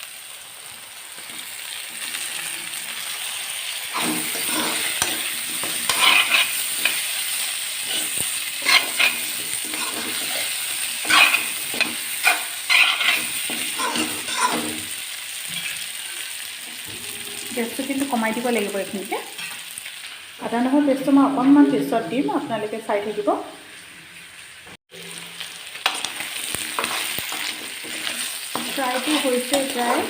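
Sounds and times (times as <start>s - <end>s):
pork frying in hot oil: 0.0s - 21.4s, 23.2s - 30.0s
spatula scraping a pan: 3.8s - 17.8s, 24.9s - 30.0s.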